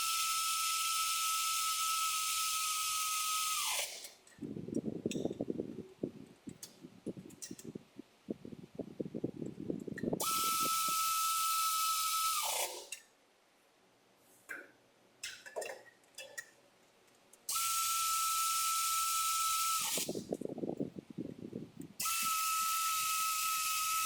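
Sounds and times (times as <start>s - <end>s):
air tool whining: 0.0s - 4.2s, 10.2s - 13.0s, 17.5s - 20.4s, 21.9s - 24.0s.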